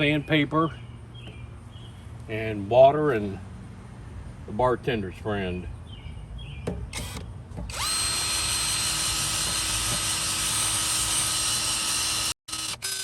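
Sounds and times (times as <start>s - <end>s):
electric drill running: 6.9s - 13.0s.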